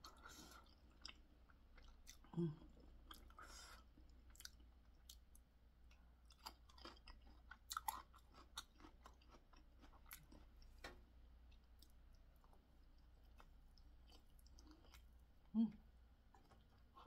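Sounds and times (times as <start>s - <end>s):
close-up chewing: 0.0s - 15.2s.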